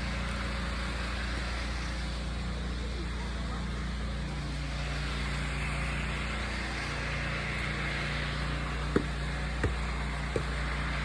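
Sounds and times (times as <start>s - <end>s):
engine humming: 4.4s - 11.0s.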